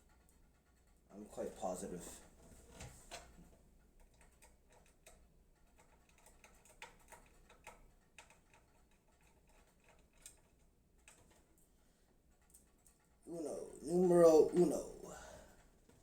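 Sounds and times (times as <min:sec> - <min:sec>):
faint clicks and light taps: 0:00.0 - 0:01.2, 0:02.0 - 0:13.3.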